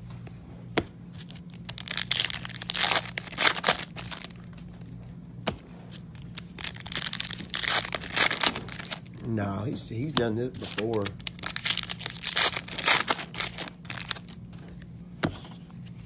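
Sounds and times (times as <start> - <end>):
low steady hum: 0.0 - 16.0
card pack wrappers tearing and crinkling: 1.2 - 4.5, 5.9 - 9.1, 10.4 - 14.4.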